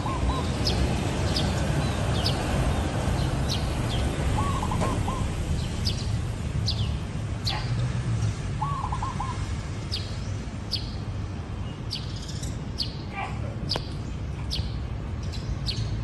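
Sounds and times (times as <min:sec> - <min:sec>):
small birds chirping: 0:00.0 - 0:16.0
dove cooing: 0:04.4 - 0:05.4.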